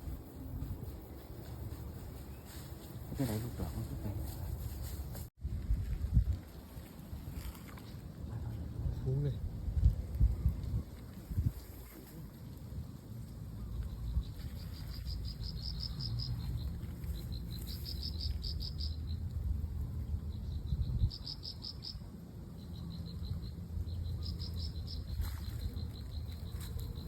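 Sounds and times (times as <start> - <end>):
insect chirping: 13.6 - 27.0
low steady rumble: 15.5 - 21.2.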